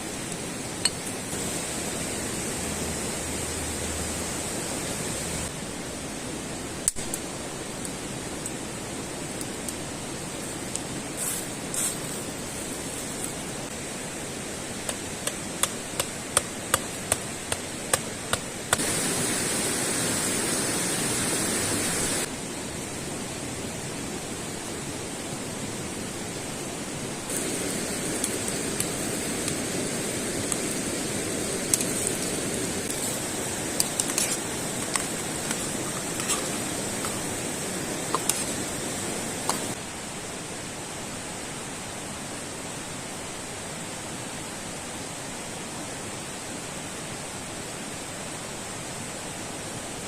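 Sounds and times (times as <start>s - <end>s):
steady rushing noise: 8.7s - 40.3s.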